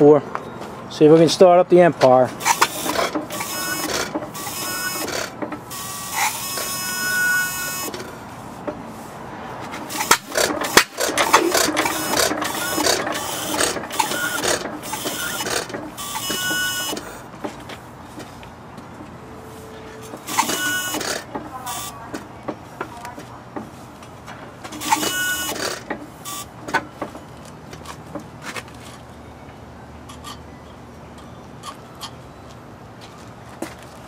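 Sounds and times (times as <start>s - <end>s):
engine whirring while cranked: 2.3s - 8.3s, 9.6s - 17.6s, 20.0s - 23.7s, 24.6s - 28.3s
mechanical clicks and knocks: 9.7s - 17.6s, 24.7s - 27.3s.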